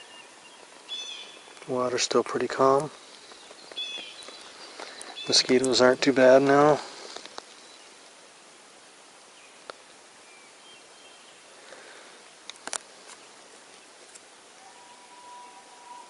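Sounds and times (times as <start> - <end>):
faint steady hiss: 0.0 - 16.0
small sharp clicks: 12.4 - 13.2
faint high chirps: 14.7 - 16.0.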